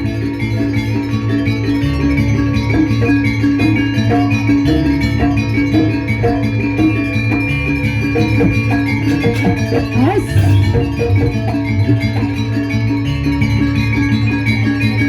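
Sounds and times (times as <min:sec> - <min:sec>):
steady drumming: 0:02.7 - 0:13.0
metallophone and gong tones: 0:02.7 - 0:13.7.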